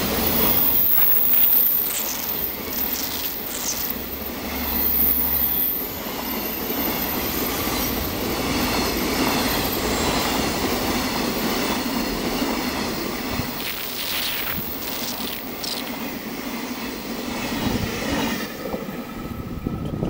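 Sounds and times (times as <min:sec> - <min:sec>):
steel wheels rumbling on rails: 0:00.0 - 0:20.0
high wheel squeal: 0:00.1 - 0:08.1.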